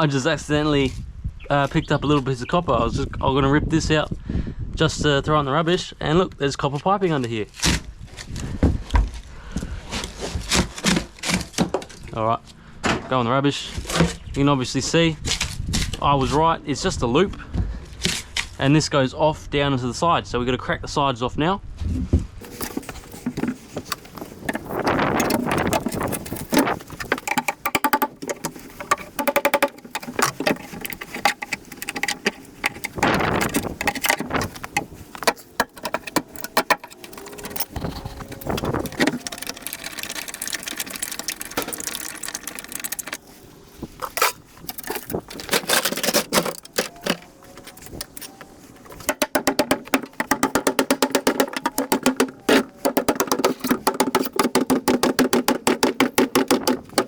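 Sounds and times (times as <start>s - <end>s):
quick run of clicks: 22.4s - 43.3s
sheet metal clanking and rattling: 22.4s - 43.3s.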